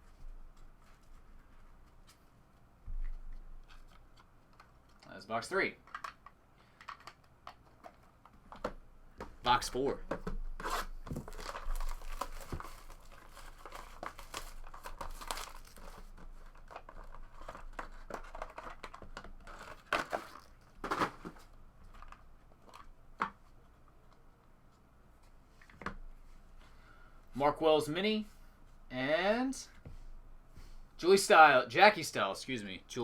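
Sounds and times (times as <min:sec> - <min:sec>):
card packaging tearing and crinkling: 0:10.6 - 0:21.3
cards rustling: 0:11.1 - 0:22.9.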